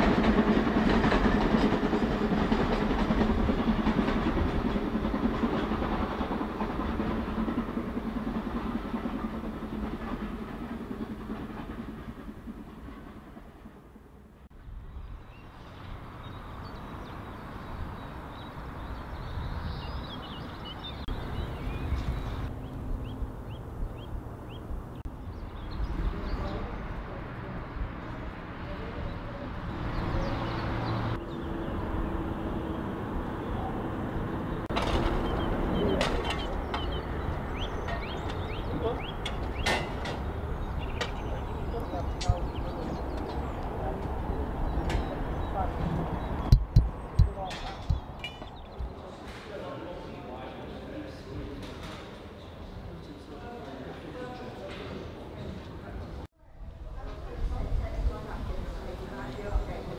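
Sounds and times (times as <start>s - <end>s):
train wheels clicking over joints: 0.0s - 14.0s, 34.7s - 49.4s
birds chirping: 14.9s - 27.2s, 28.8s - 49.3s.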